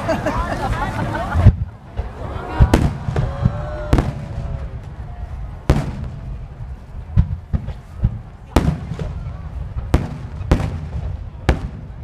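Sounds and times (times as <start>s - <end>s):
steady low rumble: 0.0s - 12.0s
firework shells booming: 1.4s - 5.0s, 5.6s - 6.4s, 7.1s - 12.0s.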